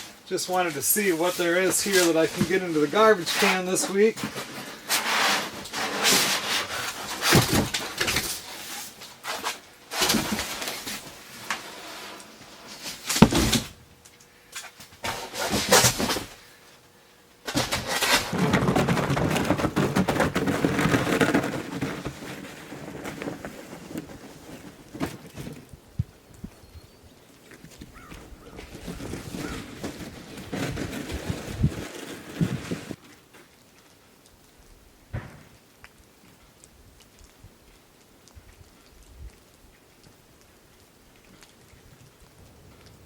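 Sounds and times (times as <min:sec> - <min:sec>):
rustling: 0:00.0 - 0:43.0
objects knocking and clattering: 0:17.5 - 0:25.6.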